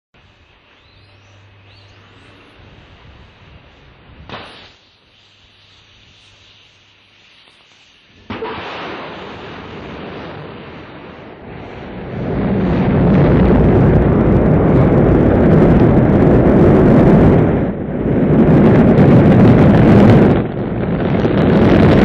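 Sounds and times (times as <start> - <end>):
rocket engine roaring: 8.1 - 22.0.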